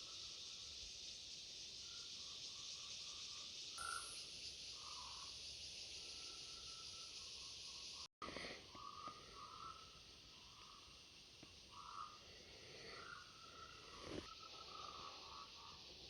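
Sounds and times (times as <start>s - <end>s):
insect chorus drone: 0.0s - 16.0s.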